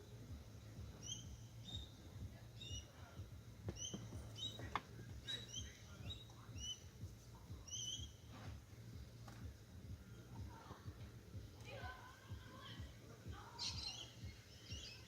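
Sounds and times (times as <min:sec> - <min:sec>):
small bird chirping: 0:00.0 - 0:08.6, 0:13.5 - 0:15.0
low steady hum: 0:00.0 - 0:15.0.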